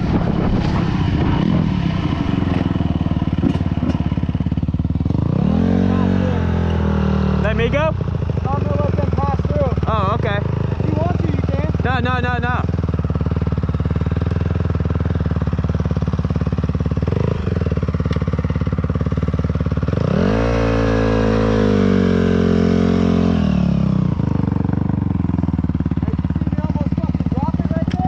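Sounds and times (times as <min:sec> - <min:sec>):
dirt bike engine idling: 0:00.0 - 0:28.0
dirt bike riding past: 0:15.4 - 0:28.0.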